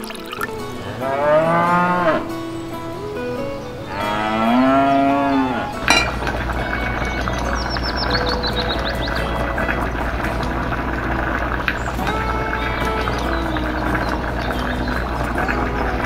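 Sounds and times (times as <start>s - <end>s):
cow mooing: 0.9s - 2.4s, 3.8s - 6.2s
metal pot lid clink: 5.9s - 6.4s.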